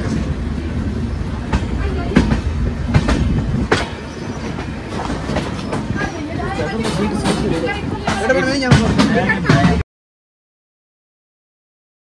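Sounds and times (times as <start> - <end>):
train wheels rumbling on rail: 0.0 - 9.8
wheels clacking over rail joints: 0.0 - 9.8.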